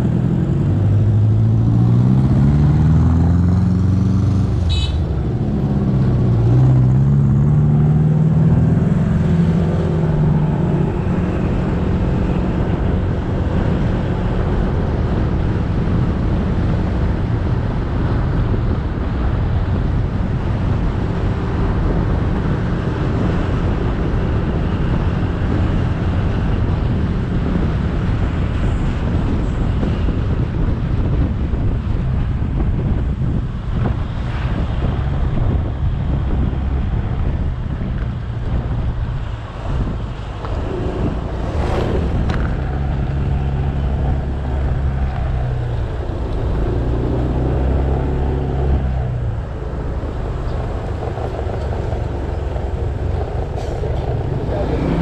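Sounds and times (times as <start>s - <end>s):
road noise: 0.0s - 55.0s
wind on microphone: 0.0s - 55.0s
motorcycle engine revving: 39.8s - 55.0s.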